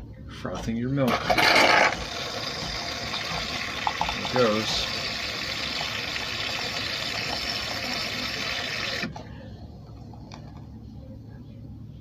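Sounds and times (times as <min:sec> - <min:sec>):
milk frother steaming hiss: 0:01.1 - 0:09.2
faint low hum: 0:02.0 - 0:12.0.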